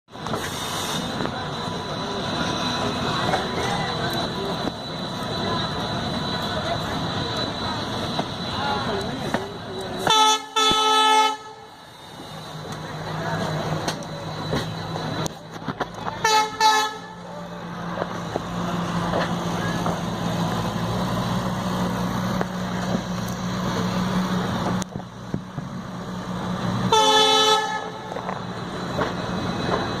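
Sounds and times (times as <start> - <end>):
engine humming: 0.1 - 30.0
vehicle horn tooting: 10.0 - 11.6, 16.2 - 17.2, 26.9 - 28.0.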